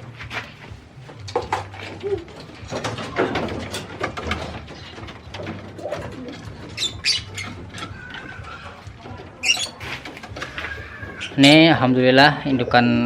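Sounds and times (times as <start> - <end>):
clicks and rustles: 0.0 - 11.6
pigeons cooing: 1.4 - 11.8.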